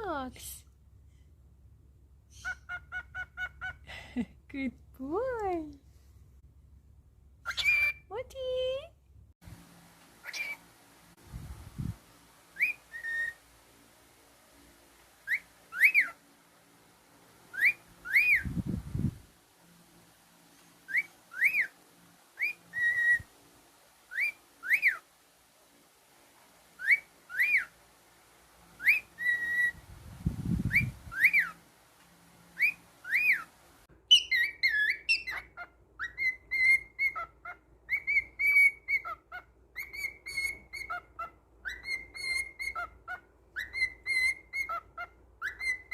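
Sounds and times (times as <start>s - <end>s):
cockatiel whistling: 7.5s - 8.0s, 10.2s - 10.6s, 12.6s - 13.4s, 15.2s - 16.2s, 17.5s - 18.5s, 20.9s - 21.7s, 22.4s - 23.3s, 24.1s - 25.0s, 26.8s - 27.7s, 28.8s - 29.8s, 30.7s - 31.6s, 32.6s - 33.5s, 34.1s - 45.9s.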